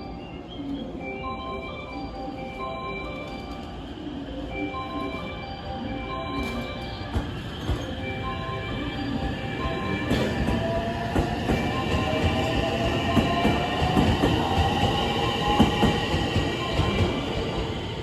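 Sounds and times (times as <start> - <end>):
train wheels clattering on rails: 6.4 - 8.5, 9.1 - 18.0.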